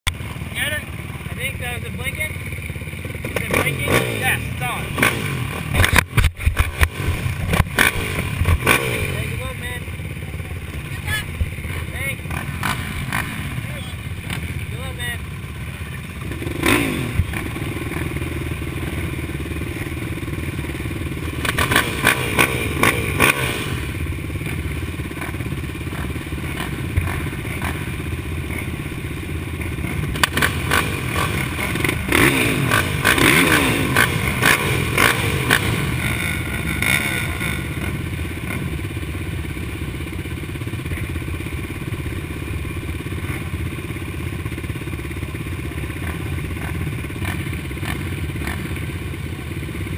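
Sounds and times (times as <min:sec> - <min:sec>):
dirt bike engines revving: 0:00.1 - 0:49.9.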